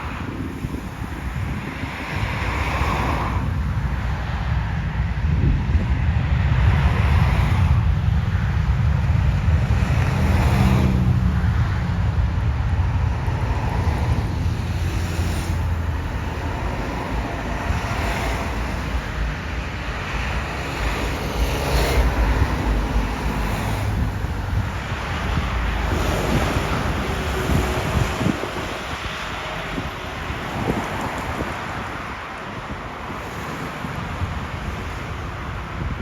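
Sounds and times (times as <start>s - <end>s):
wind buffeting microphone: 0.0s - 36.0s
distant jet engines rumbling: 4.9s - 32.1s.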